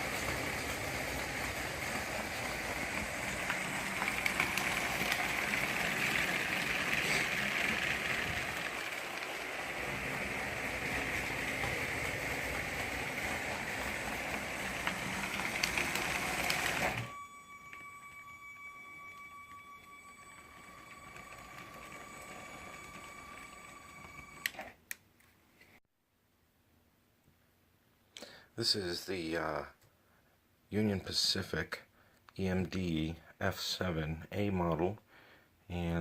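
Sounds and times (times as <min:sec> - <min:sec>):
toy train motor whirring rattle: 0:00.0 - 0:24.5.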